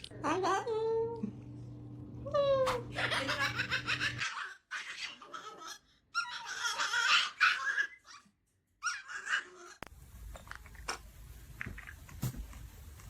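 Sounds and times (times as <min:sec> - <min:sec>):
laughter: 0:02.9 - 0:04.5.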